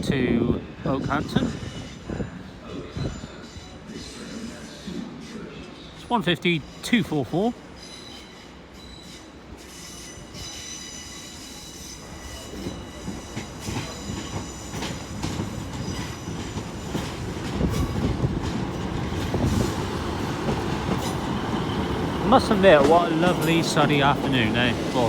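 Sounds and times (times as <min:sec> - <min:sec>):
train wheels and brakes squealing: 0:00.9 - 0:25.0.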